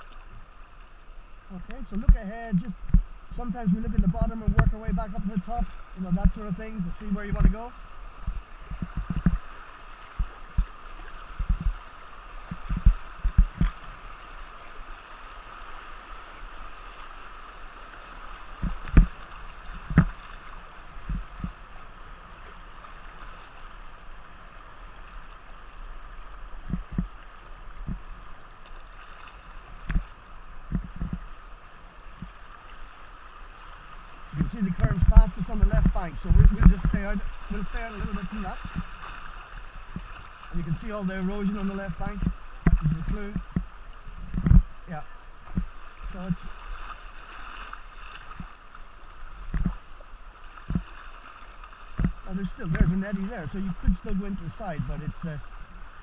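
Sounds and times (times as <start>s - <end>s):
river water rushing: 0.0s - 56.0s
low thumps on kayak: 3.8s - 4.9s, 8.2s - 9.4s, 11.4s - 11.8s, 12.5s - 13.8s, 18.6s - 19.2s, 19.8s - 20.2s, 30.7s - 31.2s, 34.4s - 37.1s, 39.9s - 40.2s, 42.1s - 44.7s, 50.6s - 51.0s, 51.9s - 53.0s.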